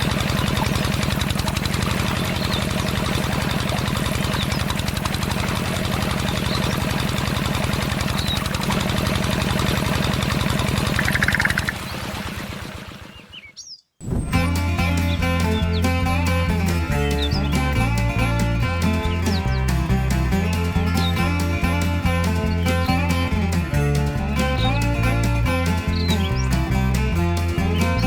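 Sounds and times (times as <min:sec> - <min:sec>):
small engine running: 0:00.0 - 0:13.6, 0:14.2 - 0:28.0
birds chirping: 0:00.0 - 0:28.0
music: 0:14.2 - 0:28.0.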